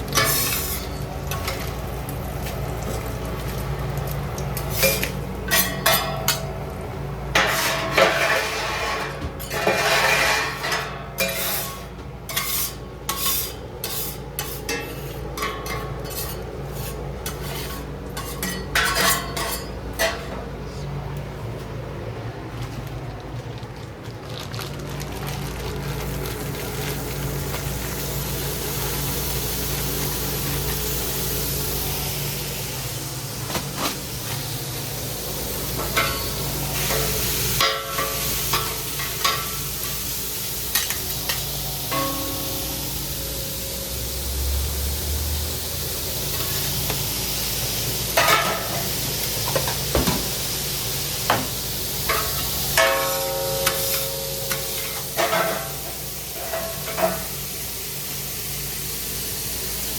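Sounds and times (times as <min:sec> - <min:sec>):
metal utensils knocking and scraping: 0:00.2 - 0:01.6, 0:07.4 - 0:20.3
food sizzling in a pan: 0:26.4 - 0:59.9.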